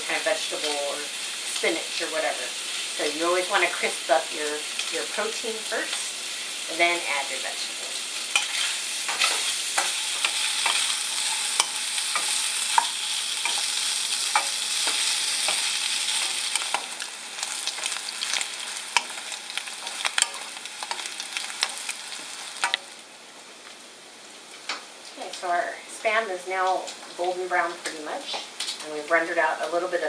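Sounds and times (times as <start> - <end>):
meat sizzling in hot fat: 0.0 - 23.8
wooden spatula clicking and scraping: 8.4 - 22.9.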